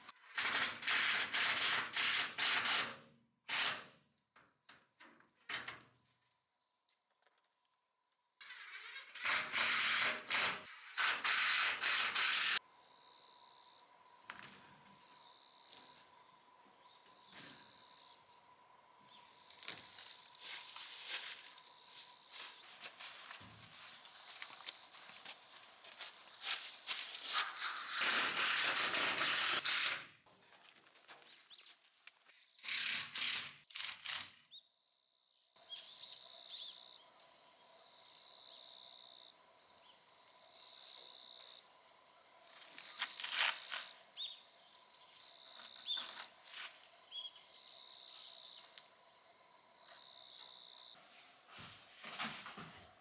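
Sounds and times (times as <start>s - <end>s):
birds chirping: 12.7s - 26.9s.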